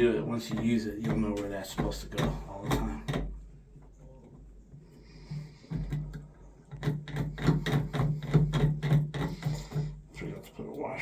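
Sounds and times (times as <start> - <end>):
faint low hum: 0.0 - 6.9.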